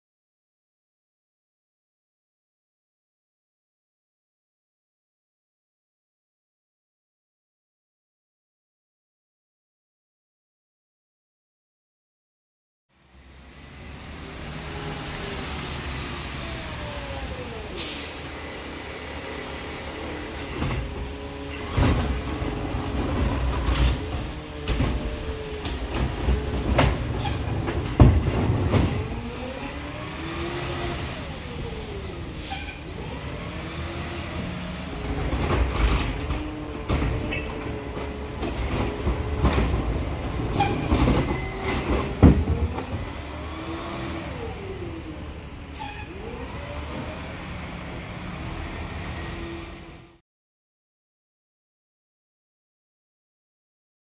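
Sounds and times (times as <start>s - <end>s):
garbage truck engine revving: 13.7s - 50.2s
carts banging and clattering: 21.5s - 29.3s, 35.0s - 43.3s.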